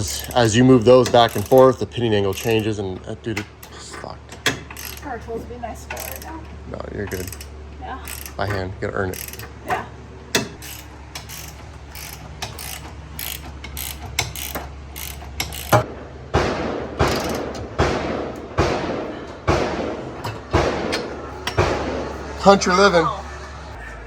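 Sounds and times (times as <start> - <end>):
ratchet wrench clicking: 0.0 - 2.8, 3.4 - 5.2, 5.9 - 6.4, 7.1 - 15.9, 17.1 - 17.6.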